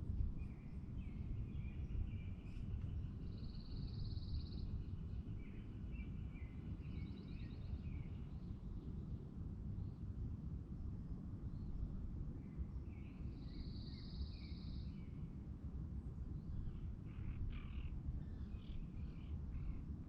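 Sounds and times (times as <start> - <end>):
low background rumble: 0.0 - 10.0
songbirds chirping: 0.4 - 8.7.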